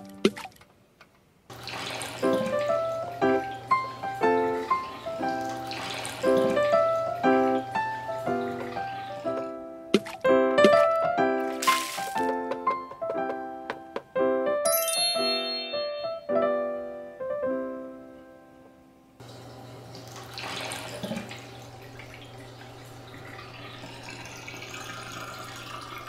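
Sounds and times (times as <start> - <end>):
light piano melody: 0.0 - 0.5, 1.6 - 19.6
running water hiss: 1.5 - 9.5, 19.2 - 26.0
high chime: 14.6 - 16.4.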